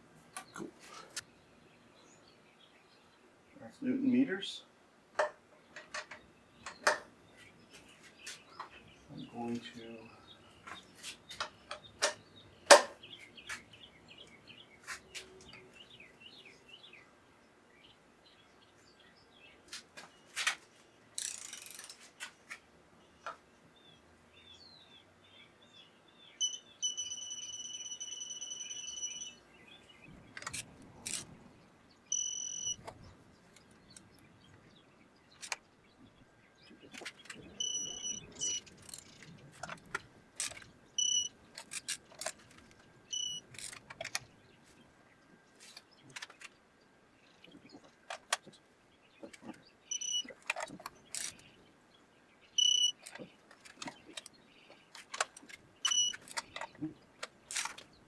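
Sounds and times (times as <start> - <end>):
torque wrench electronic beeps: 26.4 - 29.4, 32.1 - 32.9, 37.6 - 39.1, 41.0 - 41.4, 43.1 - 43.5, 49.9 - 50.4, 52.6 - 53.0, 55.8 - 56.3.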